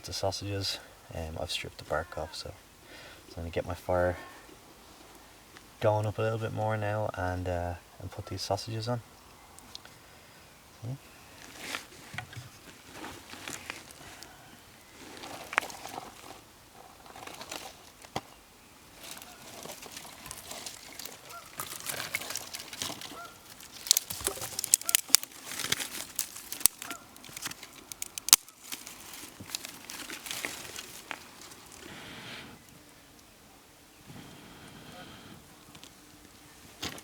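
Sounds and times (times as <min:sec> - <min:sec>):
rustling twigs: 0:11.2 - 0:33.3
twigs snapping and crackling: 0:15.2 - 0:16.4, 0:19.0 - 0:31.9
goose honks: 0:21.2 - 0:21.6, 0:23.1 - 0:23.4.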